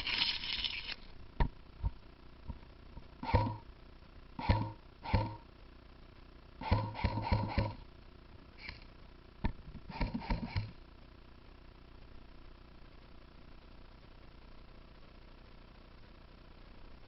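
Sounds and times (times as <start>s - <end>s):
airsoft rifle shots: 3.2s - 3.6s, 4.4s - 5.4s, 6.6s - 7.8s.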